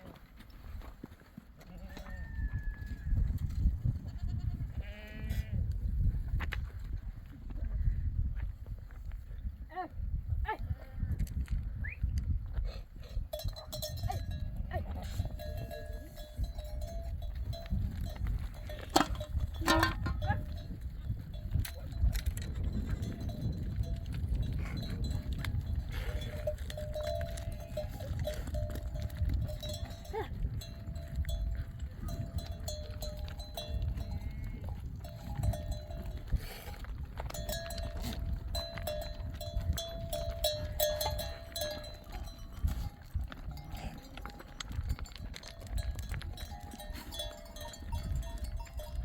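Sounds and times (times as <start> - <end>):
livestock bells clinking: 13.3 - 49.0.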